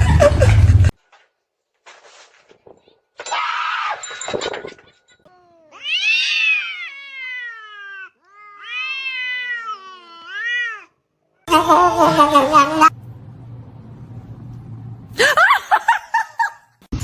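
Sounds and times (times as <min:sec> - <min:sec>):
cat meowing: 0:05.3 - 0:11.0.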